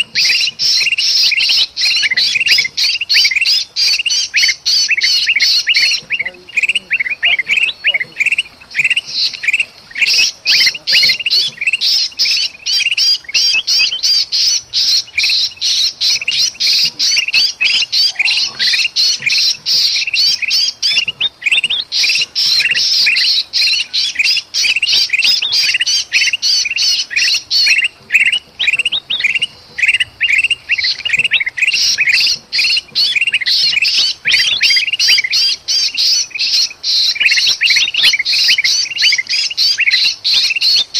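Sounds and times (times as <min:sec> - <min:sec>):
birds chattering and chirping: 0:00.0 - 0:40.9.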